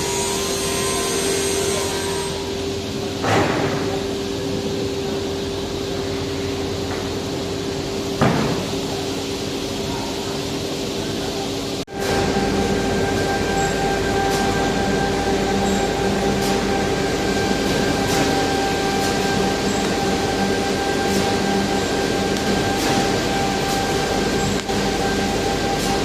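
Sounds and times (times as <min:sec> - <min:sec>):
power tool running: 0:11.9 - 0:26.0.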